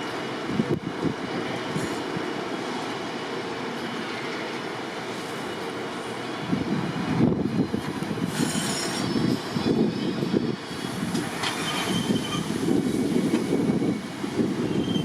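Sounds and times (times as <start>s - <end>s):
train rumbling on rails: 0.0s - 15.0s
wheel squeals: 8.3s - 15.0s.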